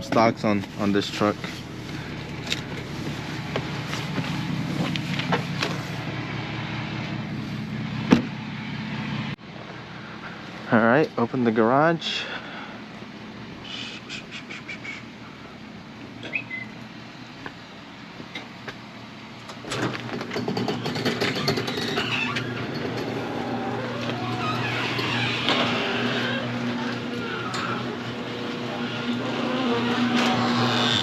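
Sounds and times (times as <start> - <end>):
garage door opener motor hum: 19.5 - 31.0
garage door rattling: 19.6 - 31.0.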